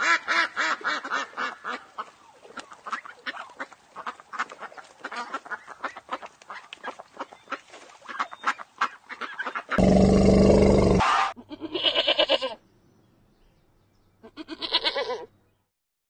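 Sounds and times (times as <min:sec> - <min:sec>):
waterfowl flock calling: 0:00.0 - 0:09.8.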